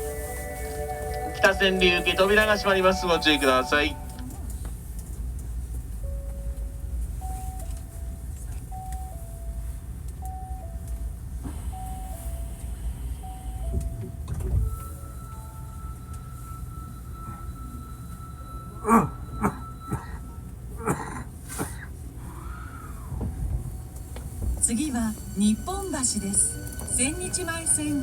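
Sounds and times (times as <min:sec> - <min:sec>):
two-tone door chime: 0:00.0 - 0:04.3, 0:06.0 - 0:20.8, 0:23.6 - 0:28.0
high steady whine: 0:00.0 - 0:04.4
low train hum: 0:00.0 - 0:28.0.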